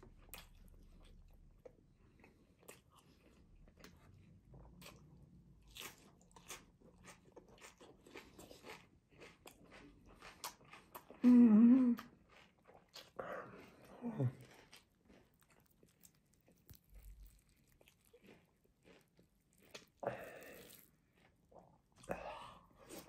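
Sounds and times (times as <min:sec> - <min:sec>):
quiet chewing: 0:00.0 - 0:23.0
person humming mmm: 0:11.2 - 0:12.1.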